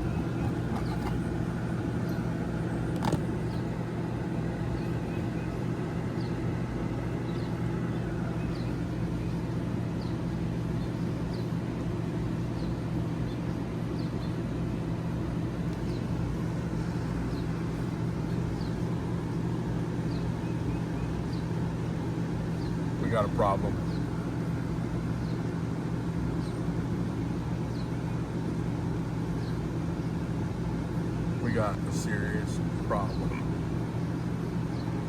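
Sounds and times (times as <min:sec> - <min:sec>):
low mechanical motor hum: 0:00.0 - 0:35.0.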